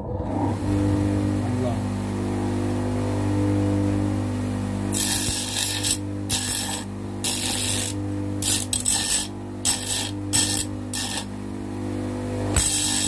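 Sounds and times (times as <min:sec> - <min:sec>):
bench grinder motor hum: 0:00.0 - 0:13.0
metal grinding against wheel: 0:04.9 - 0:11.3.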